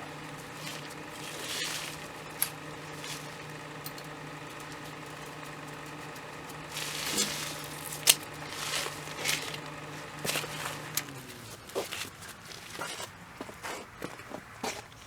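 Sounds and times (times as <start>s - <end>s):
machine hum: 0.0s - 11.7s
rustling and clattering of objects: 0.0s - 15.0s.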